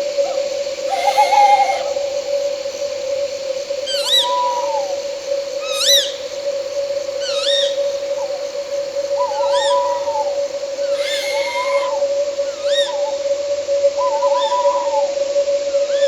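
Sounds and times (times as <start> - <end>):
owl calling: 0.0 - 13.4
night insects droning: 0.0 - 16.0.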